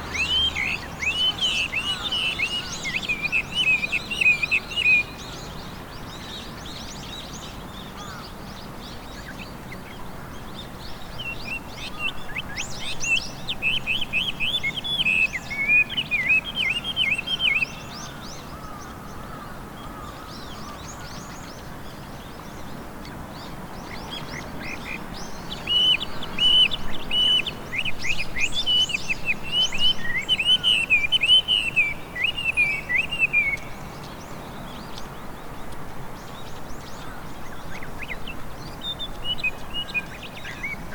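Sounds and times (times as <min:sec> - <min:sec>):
bird singing whistled song: 0:25.6 - 0:33.9.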